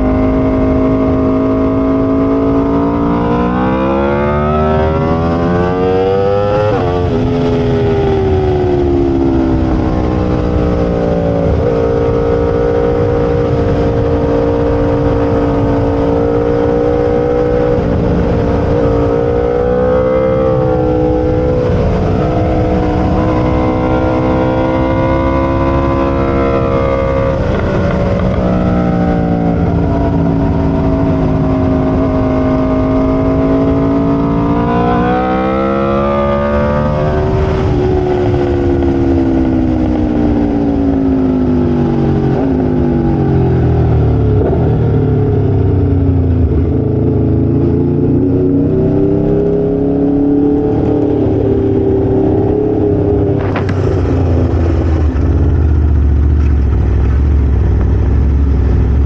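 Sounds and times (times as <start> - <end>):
sportbike engine revving: 0.0 - 40.7.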